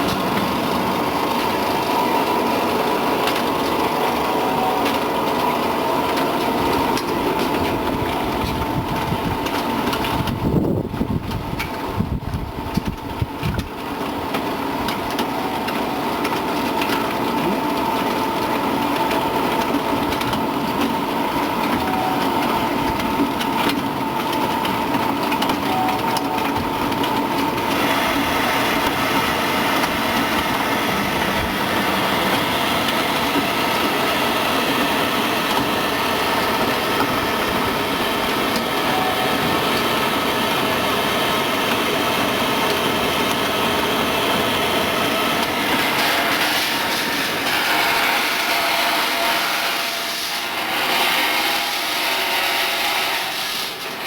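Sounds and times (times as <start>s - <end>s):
machine humming: 0.0s - 13.2s, 14.0s - 54.0s.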